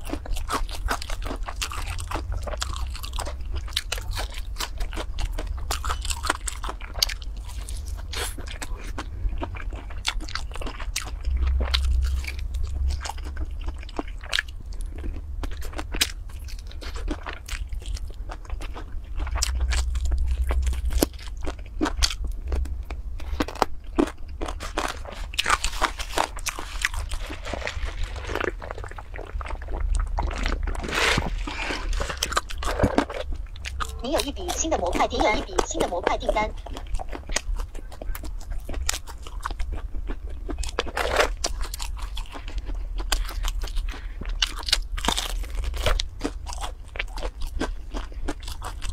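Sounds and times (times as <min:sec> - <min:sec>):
crunchy chewing of fried chicken: 0:00.0 - 0:48.9
low hum: 0:17.8 - 0:38.6.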